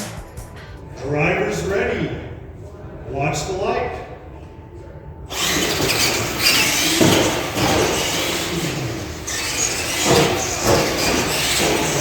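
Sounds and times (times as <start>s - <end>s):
electric motors whining: 5.3s - 12.0s.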